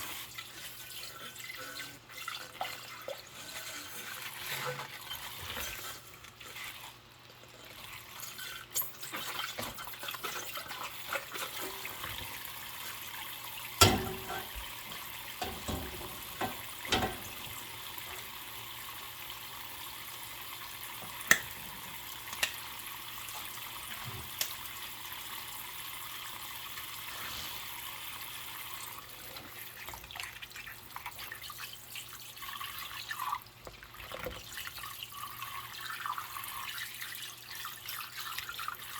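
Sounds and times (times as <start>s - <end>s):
tap water running into sink: 0.0s - 27.0s
dishes clinking and knocking: 13.8s - 17.7s.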